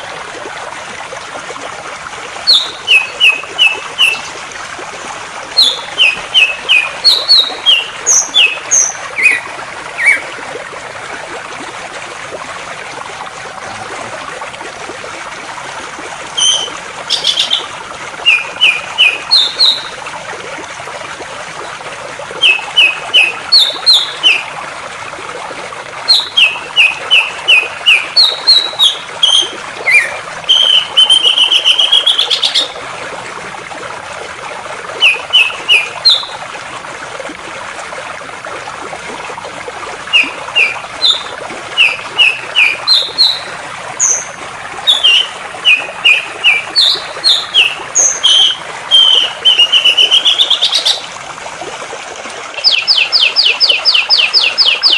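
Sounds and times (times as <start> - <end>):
flowing water rushing: 0.0 - 54.9
songbird chirping and trilling: 2.5 - 4.3, 5.6 - 9.4, 18.3 - 19.9, 26.1 - 32.7, 40.2 - 44.3, 44.9 - 51.0.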